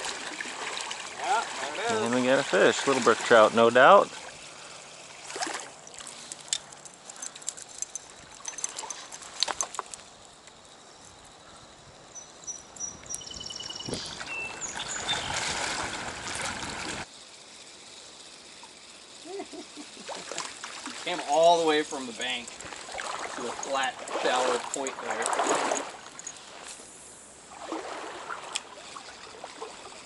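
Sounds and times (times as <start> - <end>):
small splashes of fish: 0.0 - 3.4, 4.1 - 6.2, 22.2 - 26.7, 27.5 - 30.0
rush of water: 0.0 - 6.2, 13.9 - 17.1, 20.1 - 26.7, 27.5 - 30.0
stream water trickling: 0.0 - 30.0
songbird chirping: 5.8 - 15.6.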